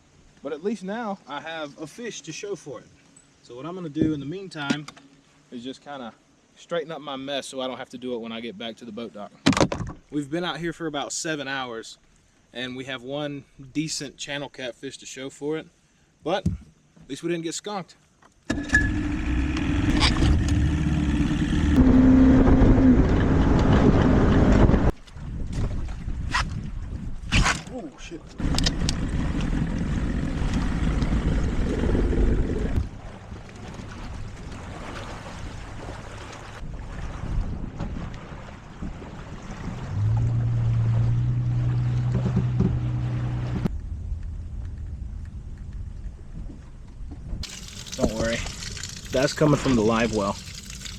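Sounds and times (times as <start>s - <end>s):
wind: 0.0s - 50.9s
electric pump motor humming: 18.5s - 22.0s, 47.4s - 50.9s
boat motor running: 18.5s - 24.9s, 28.4s - 34.5s, 39.9s - 43.7s
water noise: 18.5s - 50.9s.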